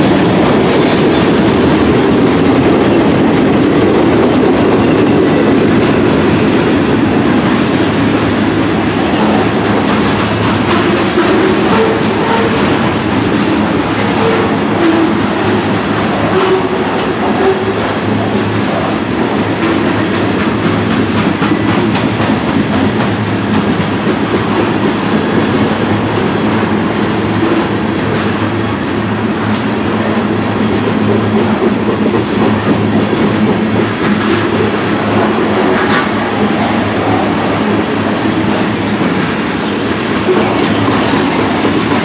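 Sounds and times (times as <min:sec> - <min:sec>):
freight train wheels rumbling: 0:00.0 - 0:42.0
rail clicks: 0:00.0 - 0:42.0.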